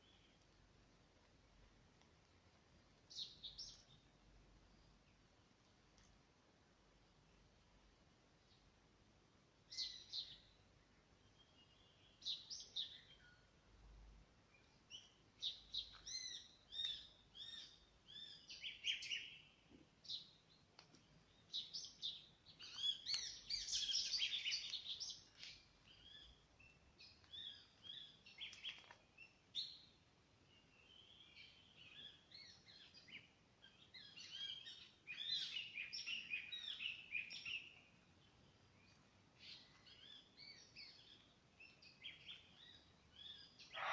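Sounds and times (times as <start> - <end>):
birds chirping: 2.1 - 5.4, 14.4 - 43.9.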